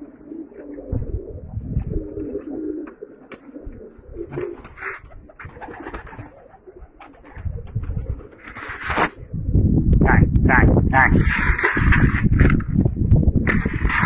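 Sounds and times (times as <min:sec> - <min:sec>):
pigeons cooing: 0:00.0 - 0:09.8.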